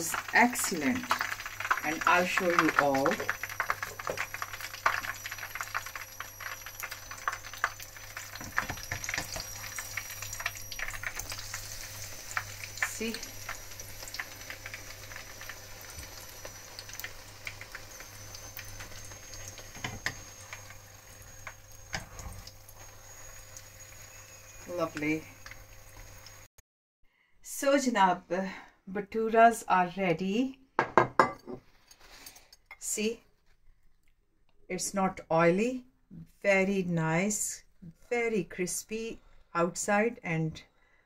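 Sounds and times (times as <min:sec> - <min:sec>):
deep-frying sizzle and pops: 0:00.0 - 0:26.5.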